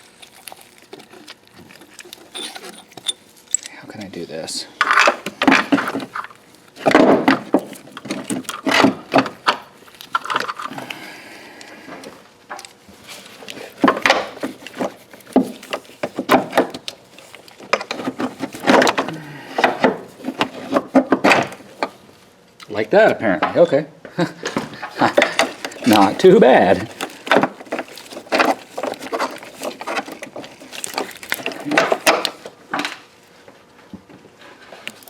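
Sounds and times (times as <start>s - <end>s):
metal scraping: 2.2s - 3.2s.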